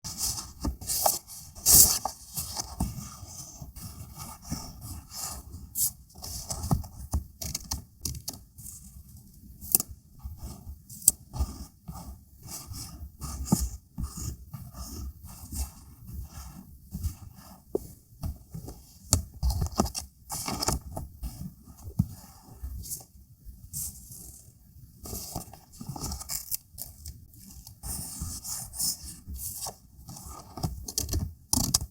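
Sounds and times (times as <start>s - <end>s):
paper rustling and scraping: 0.1s - 6.8s.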